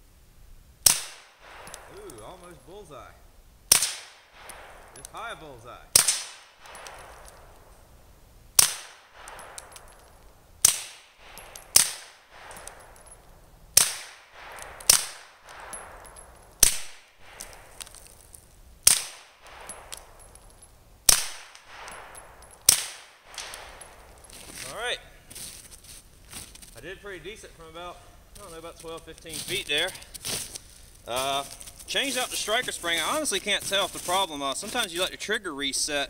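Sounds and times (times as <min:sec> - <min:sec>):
suppressed pistol shots: 0:00.8 - 0:02.3, 0:03.7 - 0:05.1, 0:05.9 - 0:07.7, 0:08.6 - 0:17.8, 0:18.8 - 0:20.4, 0:21.1 - 0:24.3.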